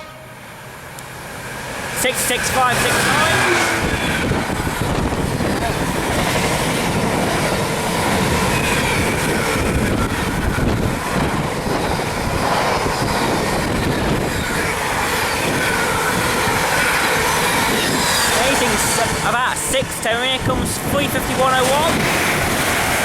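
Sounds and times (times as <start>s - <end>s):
freight train passing: 0.0s - 23.0s
wheel-on-rail noise: 0.6s - 23.0s.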